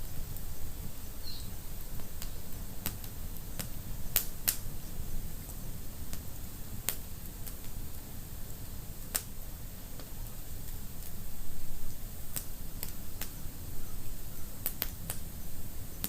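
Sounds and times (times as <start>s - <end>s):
wood fire popping: 1.4s - 7.8s, 9.0s - 9.4s, 12.3s - 13.4s, 14.6s - 16.0s.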